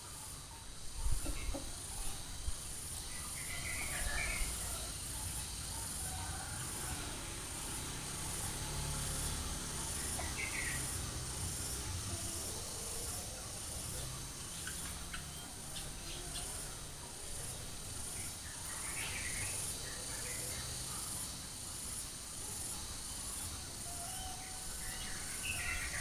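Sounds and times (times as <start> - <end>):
insect hiss: 0.0 - 26.0.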